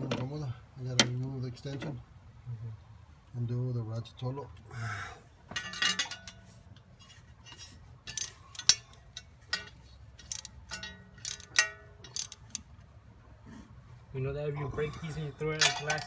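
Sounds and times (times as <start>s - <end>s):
steel tools clinking: 5.6s - 12.6s, 15.5s - 16.0s
hand ratchet clicking: 8.1s - 12.6s.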